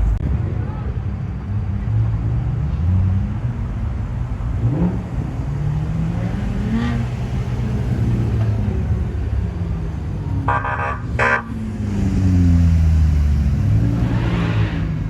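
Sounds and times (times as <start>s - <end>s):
car engines idling: 0.0s - 0.9s, 3.3s - 13.8s.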